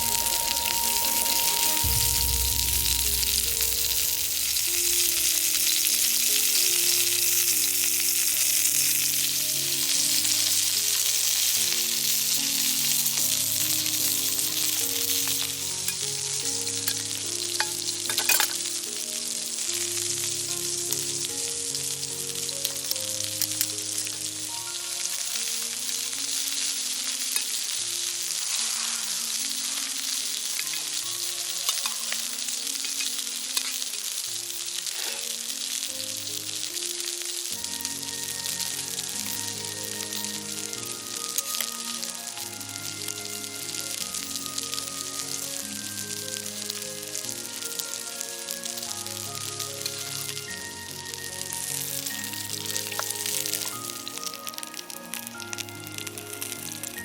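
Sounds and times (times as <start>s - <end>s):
campfire crackling: 0.0s - 57.0s
soft background music: 0.0s - 57.0s.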